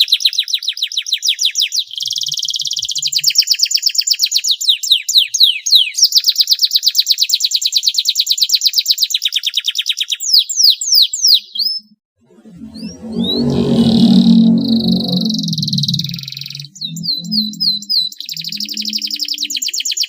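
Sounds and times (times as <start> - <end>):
low droning music-like sound: 12.2 - 19.2
canary singing trills: 12.7 - 20.0.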